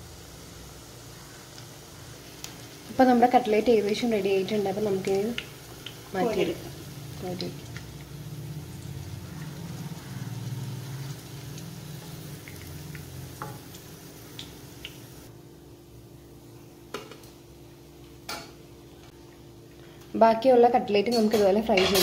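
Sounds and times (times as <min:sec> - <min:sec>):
food sizzling in oil: 0:00.0 - 0:15.3.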